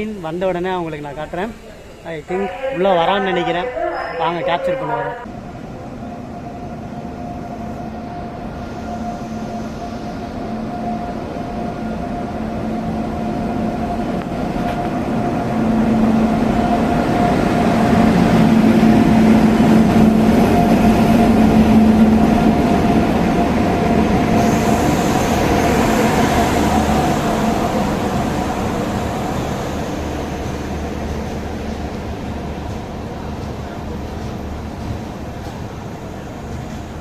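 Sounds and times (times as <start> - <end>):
passenger train rumbling past: 0.0 - 37.0.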